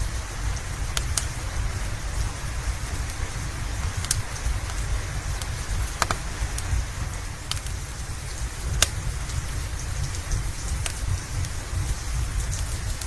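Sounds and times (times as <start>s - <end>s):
steady rain: 0.0s - 13.0s
wood fire crackling and popping: 0.0s - 13.0s.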